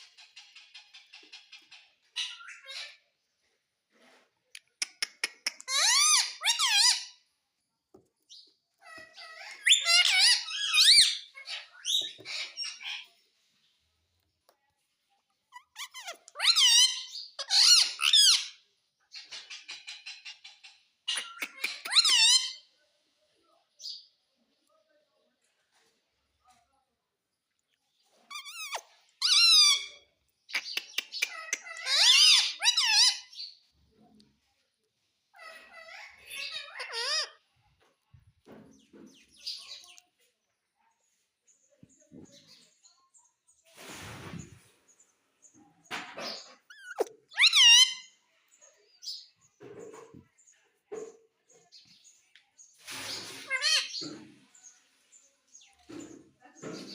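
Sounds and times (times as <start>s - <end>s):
parrot squeaky calls: 0.3s - 3.0s, 5.2s - 7.2s, 8.8s - 13.1s, 15.5s - 18.6s, 19.5s - 22.7s, 28.3s - 33.6s, 35.3s - 37.4s, 46.2s - 48.2s, 52.9s - 54.0s.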